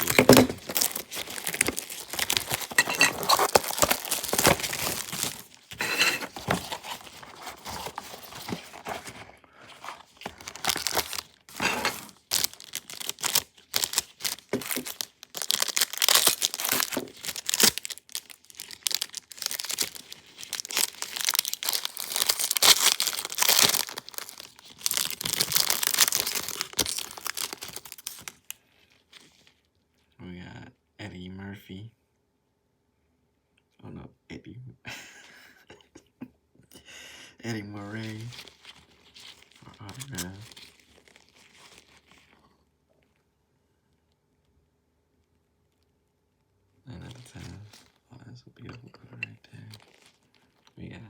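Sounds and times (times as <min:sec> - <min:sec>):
plastic wrapping crinkling and tearing: 0:00.0 - 0:29.7, 0:37.7 - 0:43.2, 0:47.1 - 0:48.0, 0:49.6 - 0:50.8.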